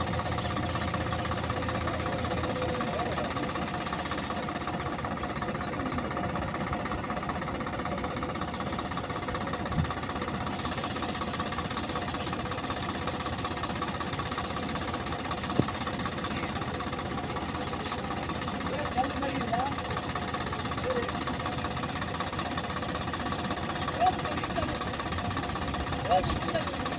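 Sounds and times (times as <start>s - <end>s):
diesel tractor engine knocking: 0.0s - 26.9s
sharp engine knocks: 15.2s - 16.1s.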